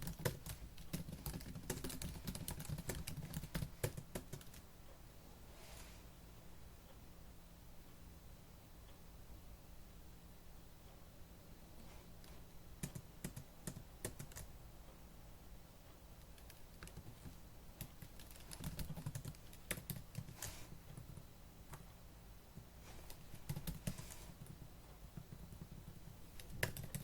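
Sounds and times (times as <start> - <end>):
fast typing on laptop keyboard: 0.0 - 4.6, 12.8 - 14.5, 16.2 - 21.8, 23.0 - 27.0.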